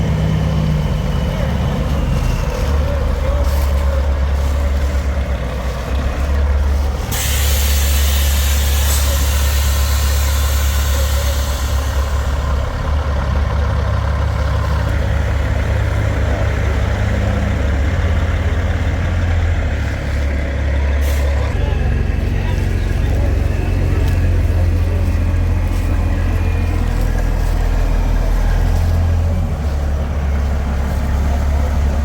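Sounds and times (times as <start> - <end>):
diesel truck engine idling: 0.0 - 32.0
air hissing: 7.0 - 12.7.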